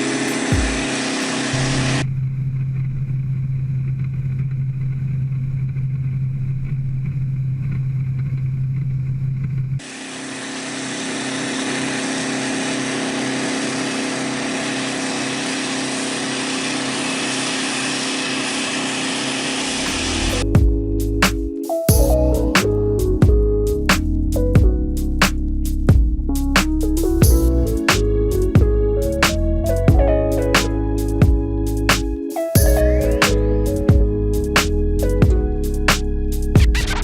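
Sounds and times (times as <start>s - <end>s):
aircraft engines droning: 0.0s - 2.0s, 9.8s - 20.4s.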